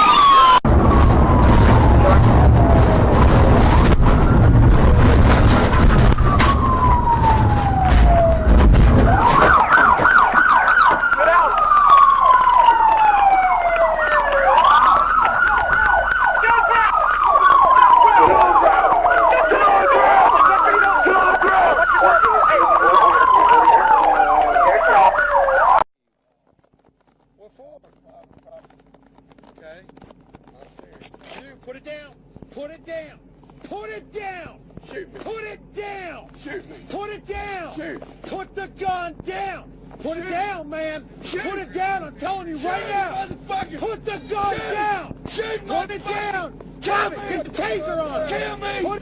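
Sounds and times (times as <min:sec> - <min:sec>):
police siren wailing and yelping: 0:00.0 - 0:04.7, 0:05.6 - 0:25.8, 0:41.3 - 0:49.0
vehicle rumble: 0:00.0 - 0:49.0.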